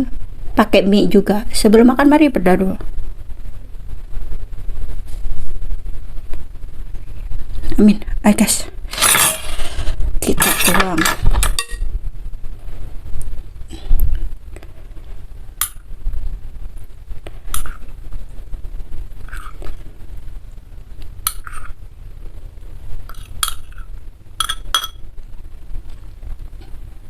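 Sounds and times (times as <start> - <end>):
metal spoon clinking on bowl: 23.1 - 23.8, 24.4 - 25.0.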